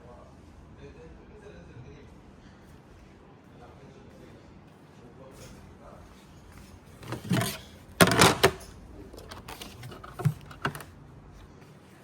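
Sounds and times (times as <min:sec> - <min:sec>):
objects clattering and rattling: 0:06.6 - 0:11.0.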